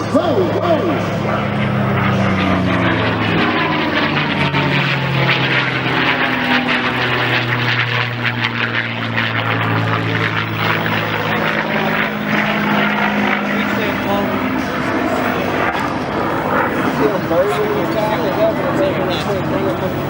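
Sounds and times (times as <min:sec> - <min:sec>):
propeller plane engine drone: 0:00.0 - 0:20.0.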